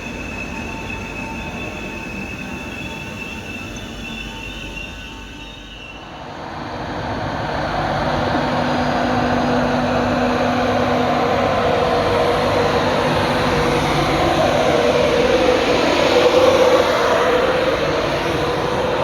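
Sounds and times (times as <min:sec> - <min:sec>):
train rumbling: 0:00.0 - 0:19.0
low hums: 0:06.2 - 0:19.0.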